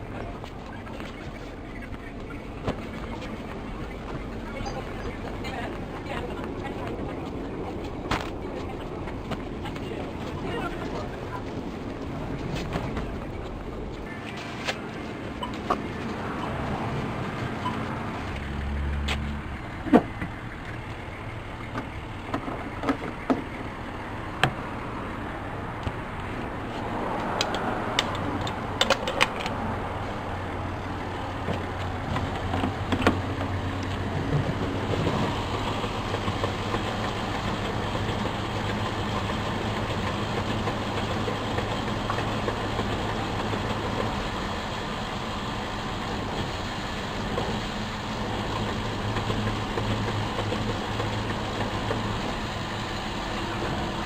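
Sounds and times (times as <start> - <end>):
car engine humming: 0.0 - 54.0
sharp clicks and knocks: 27.2 - 29.6.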